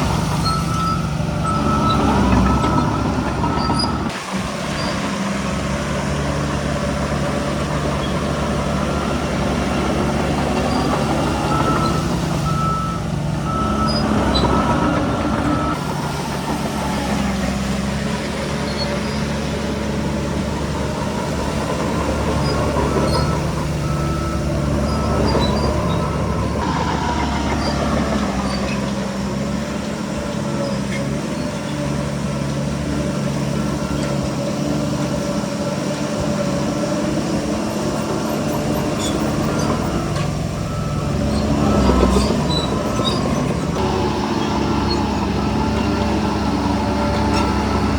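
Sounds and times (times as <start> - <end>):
heavy diesel machinery running: 0.0 - 47.9
reversing alarm beeping: 0.4 - 4.1, 10.4 - 17.3, 22.3 - 28.7, 39.0 - 44.0.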